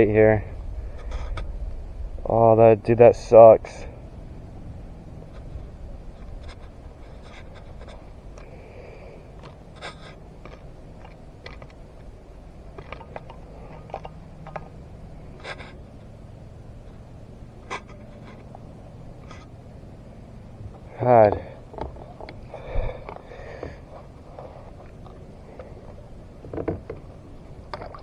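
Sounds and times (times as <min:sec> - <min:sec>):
steady low rumble: 0:00.0 - 0:27.8
fishing tackle clicks and scrapes: 0:05.2 - 0:19.6, 0:20.7 - 0:28.0.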